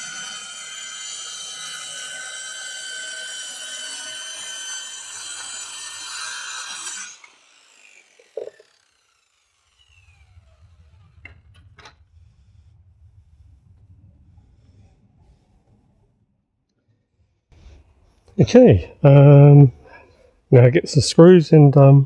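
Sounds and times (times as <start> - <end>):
saw blade spinning down: 0.0 - 12.8
circular saw cutting: 0.0 - 13.6, 17.6 - 22.0.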